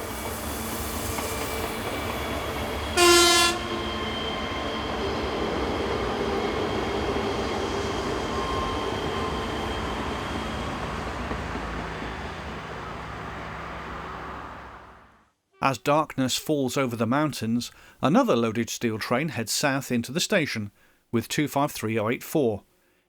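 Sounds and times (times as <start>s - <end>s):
high wheel squeal: 0.0s - 14.6s
train rail rumble: 0.0s - 15.2s.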